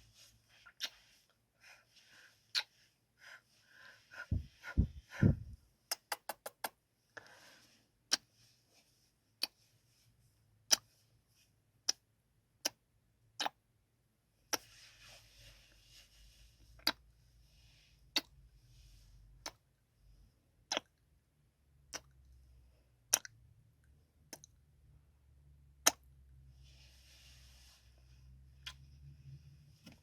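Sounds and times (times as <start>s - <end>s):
low thumps: 4.3s - 5.6s
lip smacking kisses: 5.9s - 6.8s.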